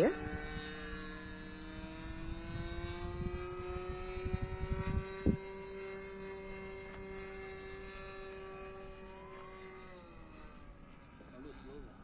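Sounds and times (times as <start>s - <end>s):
model plane engine whine: 0.0s - 12.0s
wind buffeting on microphone: 2.0s - 5.5s.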